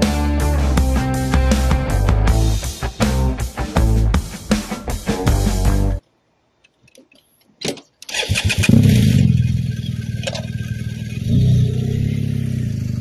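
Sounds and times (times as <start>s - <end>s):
motorcycle engine starting and revving: 8.1s - 13.0s.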